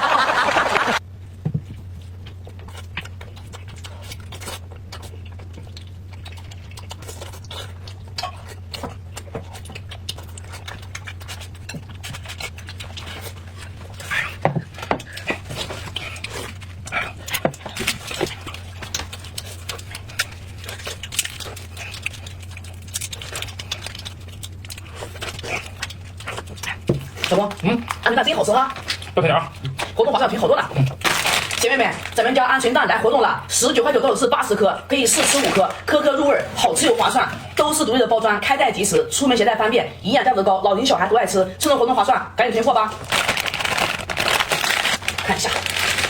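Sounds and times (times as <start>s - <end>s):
steady low hum: 0.0s - 46.0s
chewing and smacking mouth noises: 1.3s - 32.5s, 42.9s - 46.0s.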